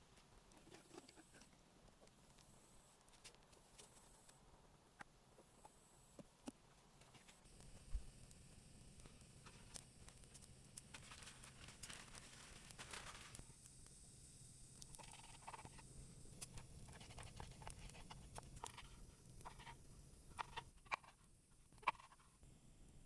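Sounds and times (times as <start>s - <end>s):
faint scratching: 16.6s - 19.8s.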